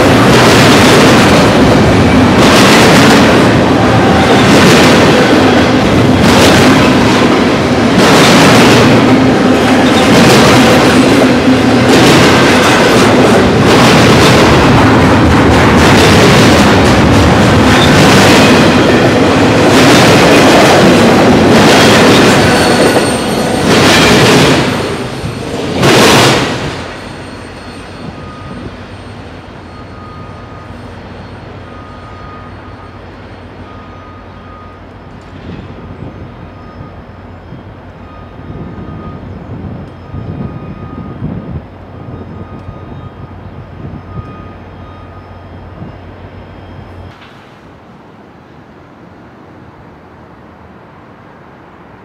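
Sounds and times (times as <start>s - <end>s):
steel train wheels rumbling on rail: 0.0s - 52.0s
faint short beeps: 27.1s - 35.2s, 43.9s - 47.2s.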